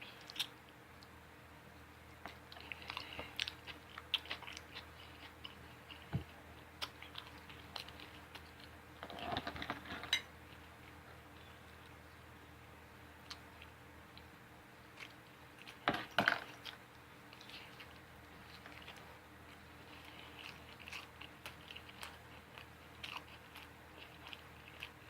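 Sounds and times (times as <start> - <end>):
person chewing food: 0.0 - 1.2, 1.8 - 12.4, 13.2 - 25.0.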